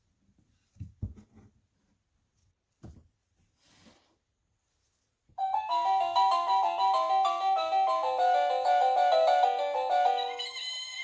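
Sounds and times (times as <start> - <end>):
board book knocks and rustle: 0.8 - 1.6, 2.8 - 3.1.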